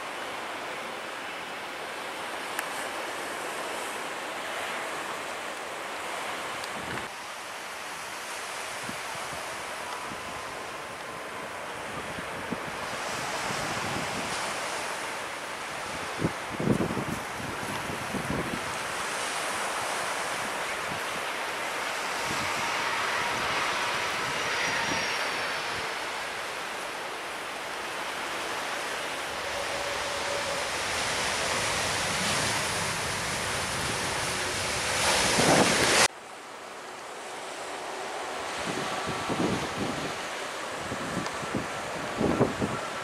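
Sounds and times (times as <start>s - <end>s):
surf: 0.0s - 36.2s
wind on microphone: 8.8s - 19.4s, 20.2s - 26.8s, 29.0s - 36.1s, 38.5s - 43.0s
faint high whine falling in pitch: 20.7s - 31.1s.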